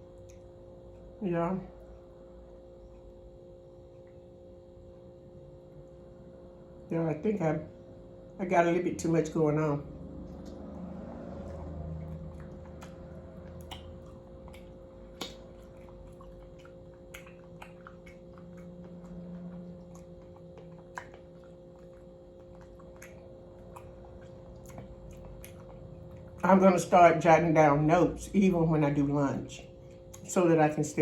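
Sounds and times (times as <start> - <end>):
faint steady hum: 0.0 - 31.0
person chewing fried chicken: 10.2 - 26.6, 29.7 - 30.3.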